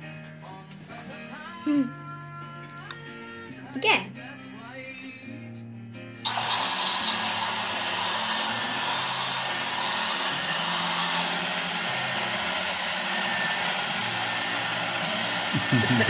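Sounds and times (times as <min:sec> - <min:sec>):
small motor whirring: 0:06.2 - 0:16.0.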